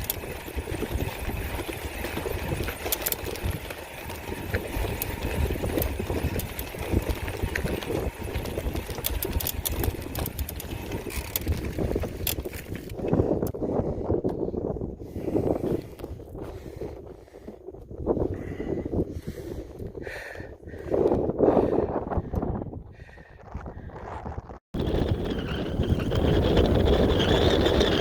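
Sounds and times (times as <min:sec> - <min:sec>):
clicks and rattles: 0:00.0 - 0:13.6
wind buffeting microphone: 0:00.0 - 0:28.0.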